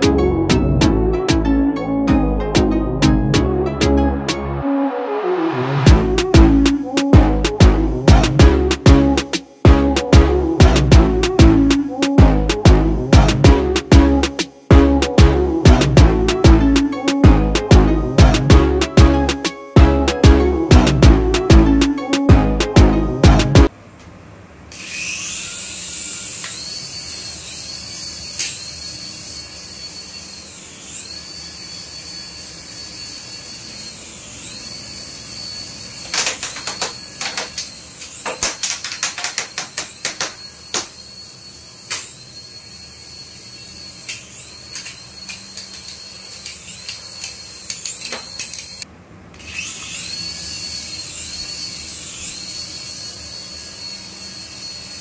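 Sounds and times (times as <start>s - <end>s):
toy aircraft electric motor whine: 11.2s - 17.7s, 19.3s - 19.8s, 24.7s - 55.0s
sharp clicks and clatter: 36.1s - 40.9s.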